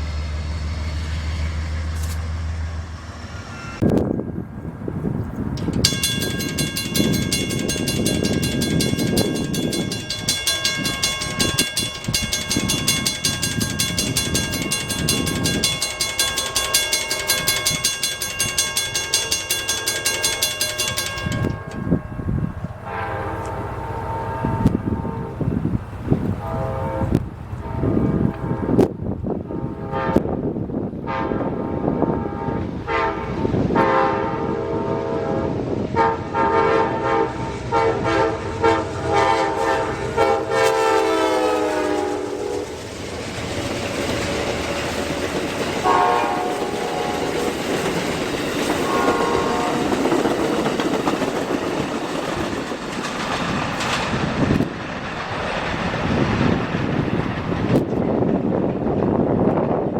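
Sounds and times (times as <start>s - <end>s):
train rumbling past: 0.0s - 59.9s
wheels clicking on rail joints: 3.8s - 28.9s, 38.4s - 59.9s
locomotive air horn: 22.8s - 25.6s, 26.4s - 30.4s, 31.1s - 42.8s, 45.8s - 47.5s, 48.8s - 50.0s.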